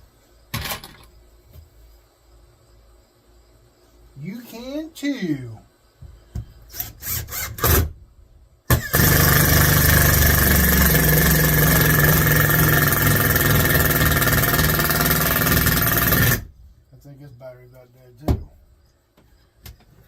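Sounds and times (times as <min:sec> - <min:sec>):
cordless drill driving screw: 0:08.7 - 0:16.5.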